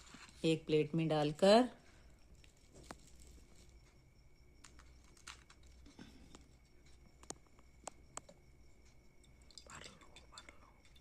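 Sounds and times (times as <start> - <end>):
faint clicks and taps: 4.6 - 11.0.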